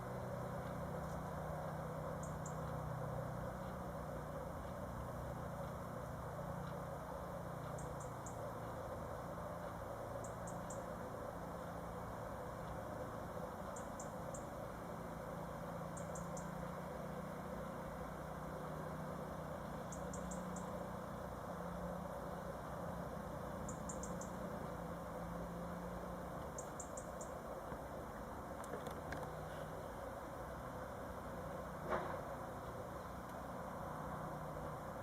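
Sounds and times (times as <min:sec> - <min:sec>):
low hum: 0:00.0 - 0:35.0
bird chirping: 0:02.0 - 0:02.8, 0:07.6 - 0:09.1, 0:10.1 - 0:12.1, 0:13.6 - 0:14.7, 0:15.3 - 0:17.8, 0:19.6 - 0:21.2, 0:23.4 - 0:27.6.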